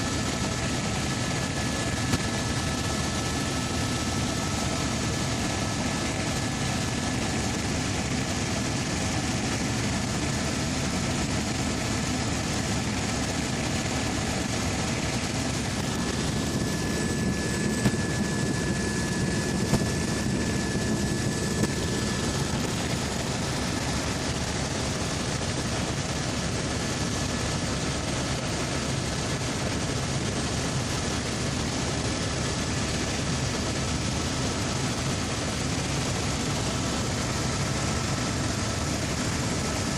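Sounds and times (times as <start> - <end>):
helicopter engine and rotor drone: 0.0 - 39.9
faint whining tones: 12.0 - 24.6.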